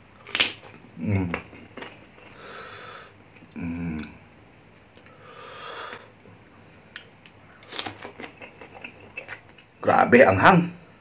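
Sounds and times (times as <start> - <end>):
closed-mouth hum: 0.6 - 7.7
breathy hiss: 2.2 - 4.2, 5.0 - 6.8.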